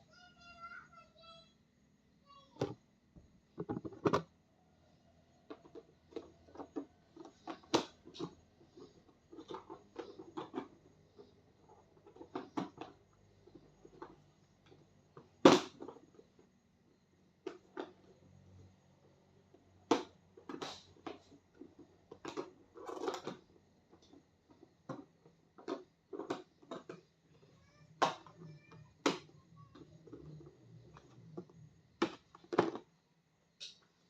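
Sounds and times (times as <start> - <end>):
clicks and knocks of handling: 3.6 - 4.3.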